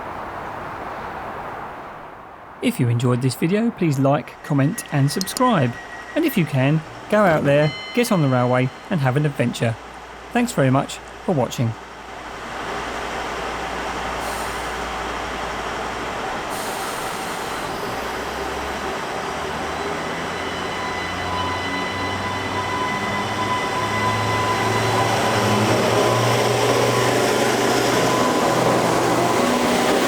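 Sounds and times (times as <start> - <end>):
thin steady whine: 2.6 - 12.3
train engine drone: 2.8 - 30.0.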